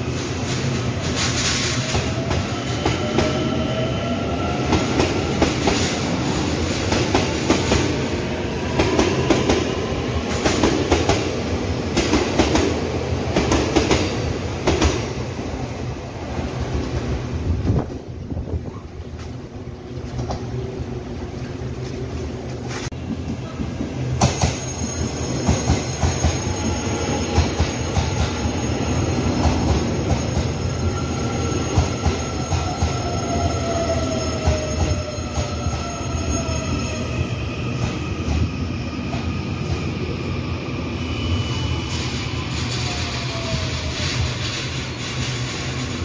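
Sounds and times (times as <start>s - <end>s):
train wheels rumbling on rail: 0.0s - 46.0s
train braking whine: 24.2s - 46.0s.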